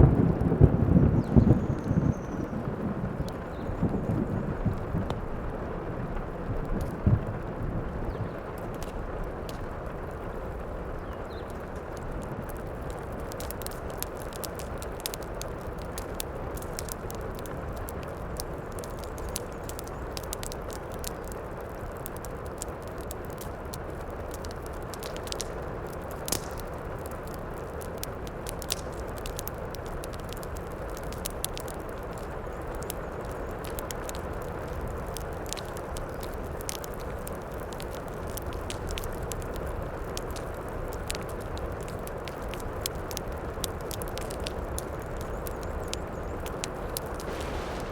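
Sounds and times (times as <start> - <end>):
heavy rain: 0.0 - 31.0, 45.8 - 47.9
wood fire crackling and popping: 0.0 - 47.9.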